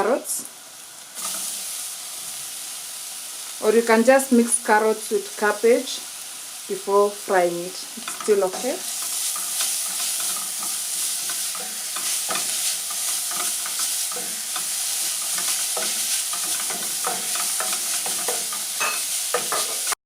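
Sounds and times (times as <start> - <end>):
vegetables sizzling in oil: 0.0 - 20.0
utensil scraping the pan: 8.0 - 20.0.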